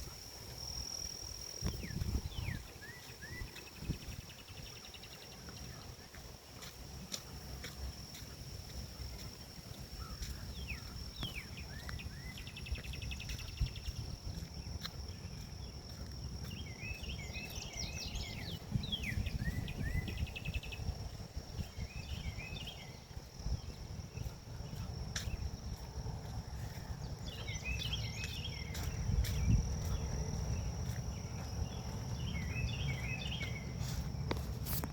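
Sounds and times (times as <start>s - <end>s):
wind rumble on microphone: 0.0s - 6.4s, 7.0s - 34.9s
high insect drone: 0.0s - 34.9s
songbird chirps and trills: 0.0s - 34.9s.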